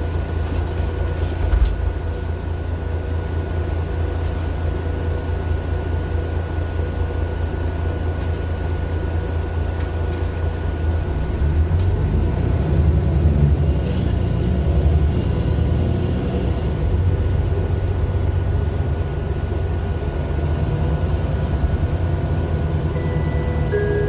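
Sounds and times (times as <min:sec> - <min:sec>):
bus diesel engine rumbling: 0:00.0 - 0:24.0
thin steady whine: 0:22.9 - 0:24.0.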